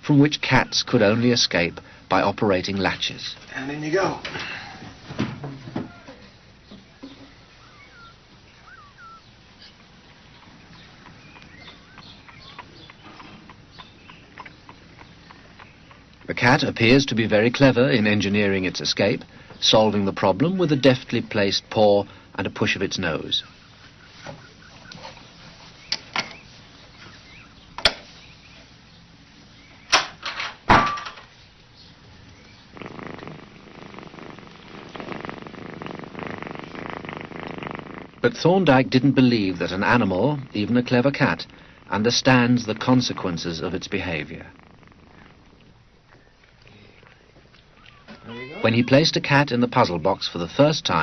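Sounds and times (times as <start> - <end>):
faint bird chirps: 0.4 - 2.3, 5.9 - 17.0, 23.2 - 30.0, 46.0 - 49.0.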